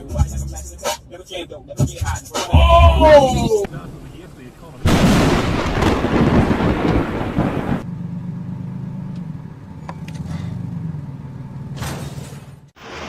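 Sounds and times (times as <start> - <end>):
vehicle engine running: 0.0 - 2.4, 5.5 - 12.8
loud rumbling noise: 2.6 - 7.9.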